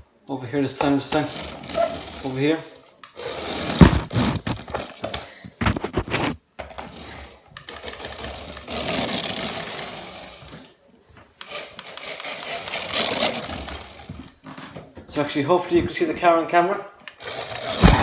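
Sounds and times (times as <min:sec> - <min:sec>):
toy car motor whirring: 0:01.0 - 0:05.1, 0:06.8 - 0:10.7, 0:11.4 - 0:14.1, 0:17.1 - 0:18.0
knocks and clatter on hard floor: 0:03.6 - 0:07.0, 0:17.6 - 0:18.0.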